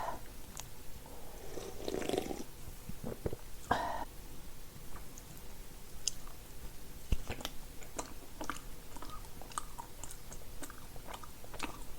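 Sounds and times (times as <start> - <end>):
person chewing crunchy food: 7.1 - 11.9.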